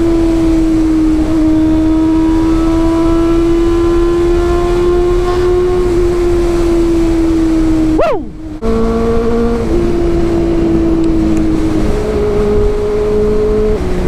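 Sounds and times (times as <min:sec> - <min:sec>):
motorcycle engine at high revs: 0:00.0 - 0:14.0.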